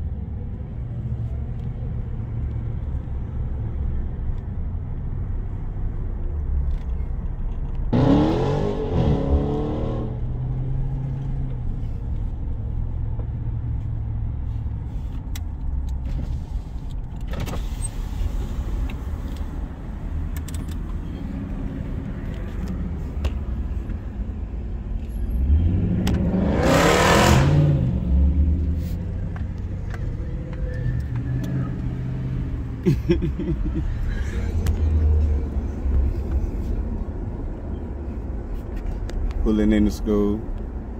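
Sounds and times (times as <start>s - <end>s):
engine revving hard: 8.0s - 10.1s, 25.6s - 27.9s.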